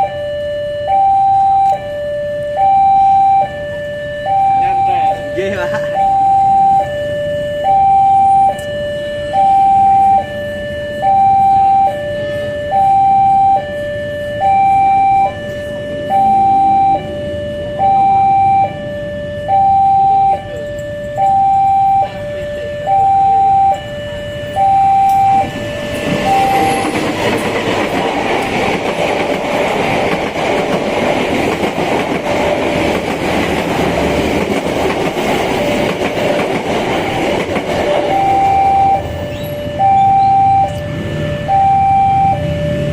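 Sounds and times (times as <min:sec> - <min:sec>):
level crossing alarm two-tone signal: 0:00.0 - 0:42.9
train rumble and wheel noise: 0:00.0 - 0:42.9.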